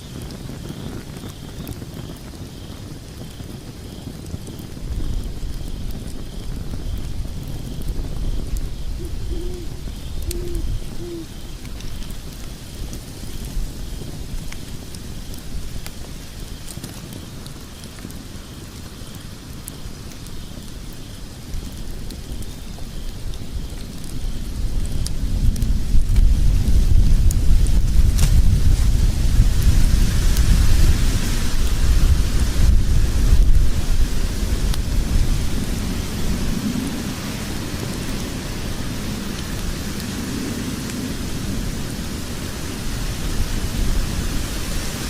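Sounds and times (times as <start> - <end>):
fire rumbling: 0.0 - 45.0
wood crackling and popping: 0.0 - 45.0.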